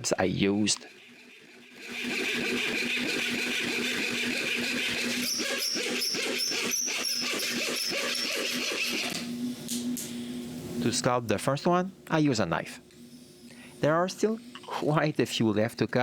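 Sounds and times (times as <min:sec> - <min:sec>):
small power tool cutting wood: 0:01.1 - 0:09.3.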